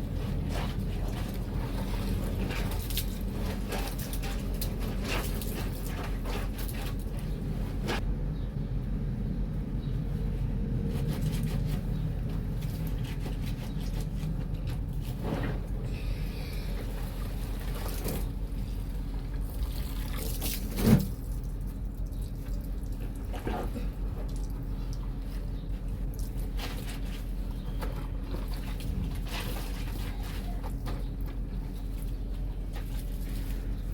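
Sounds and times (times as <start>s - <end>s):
water sloshing and splashing: 0.0s - 8.0s, 16.4s - 33.9s.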